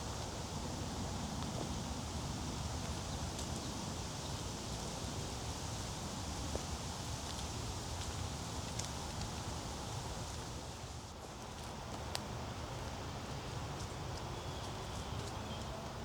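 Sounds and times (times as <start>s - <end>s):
footsteps on wet trail: 6.5s - 15.9s.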